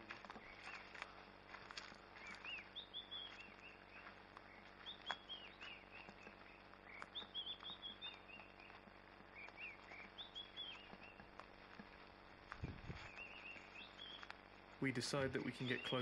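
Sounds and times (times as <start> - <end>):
birds chirping: 0.0 - 16.0
footsteps on dirt path: 0.0 - 16.0.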